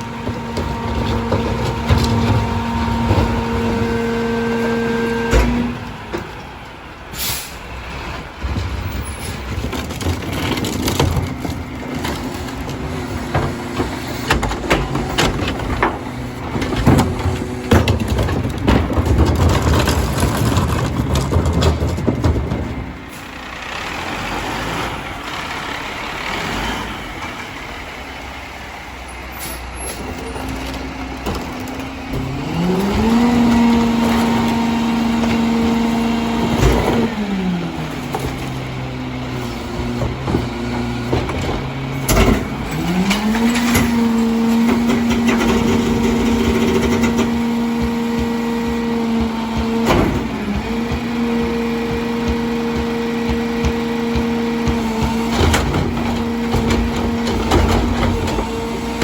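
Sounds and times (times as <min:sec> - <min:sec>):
diesel engine revving: 0:00.0 - 0:59.0
garbage truck clattering: 0:00.0 - 0:59.0
short sharp air hisses: 0:07.2 - 0:07.6.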